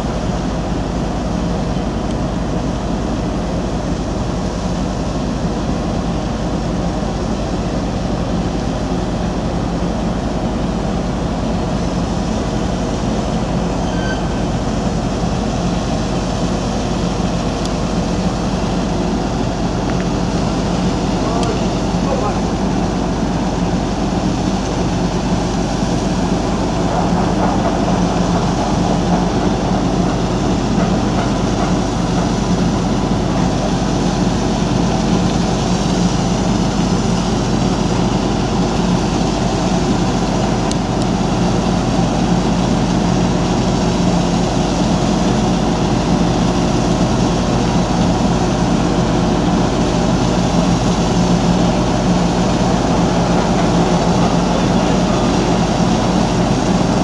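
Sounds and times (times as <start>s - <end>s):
diesel engine droning: 12.4s - 57.0s.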